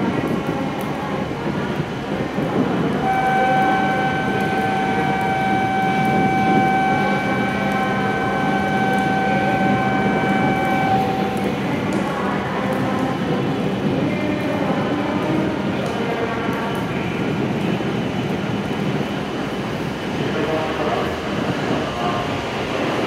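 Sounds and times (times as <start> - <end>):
train equipment humming: 0.0 - 16.6
steady high tone: 3.0 - 12.0.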